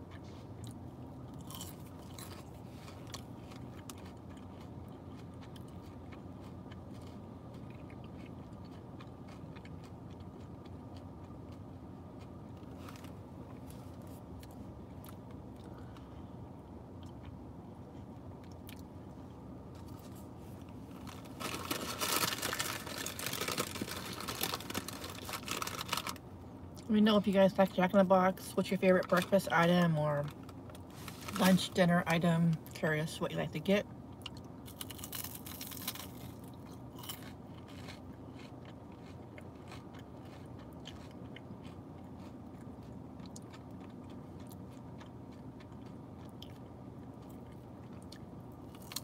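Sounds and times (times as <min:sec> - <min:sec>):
person chewing crunchy food: 0:00.0 - 0:26.9, 0:34.1 - 0:49.0
low hum: 0:00.0 - 0:49.0
crackling rustling: 0:19.7 - 0:26.2, 0:30.2 - 0:31.8.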